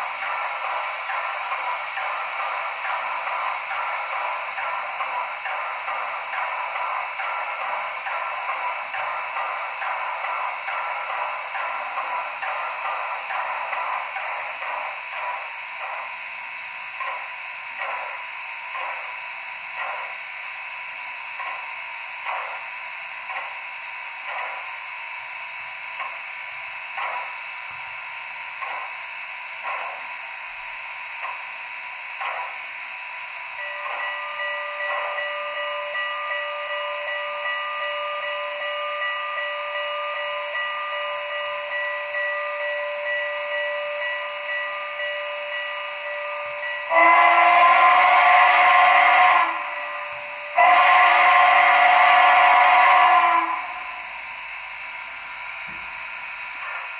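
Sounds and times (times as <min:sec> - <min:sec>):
steam locomotive exhaust chuffs: 0:00.0 - 0:56.9
multi-tone chime whistle: 0:33.3 - 0:56.9.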